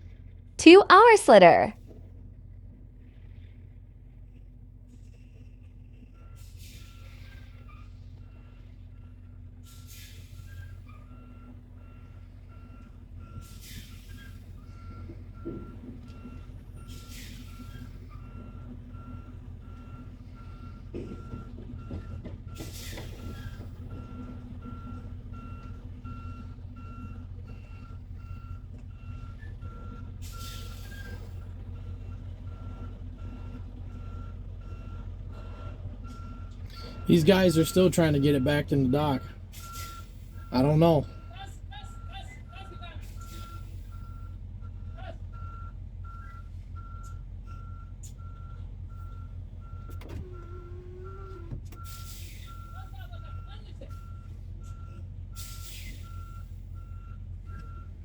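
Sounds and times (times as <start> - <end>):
diesel engine running: 0.0 - 58.0
truck backup alarm beeping: 0.6 - 1.7, 5.1 - 58.0
air brake hisses: 51.8 - 52.7, 55.4 - 56.4.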